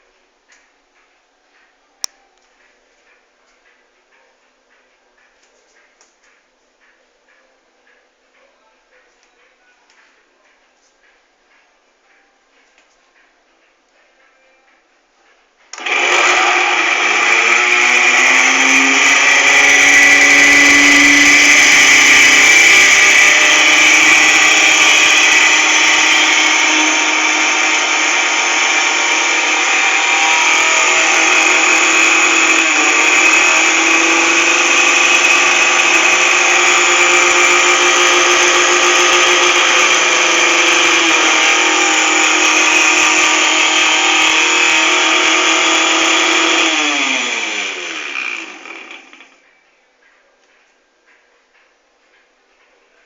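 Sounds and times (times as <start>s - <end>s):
blender motor whining: 15.8s - 49.4s.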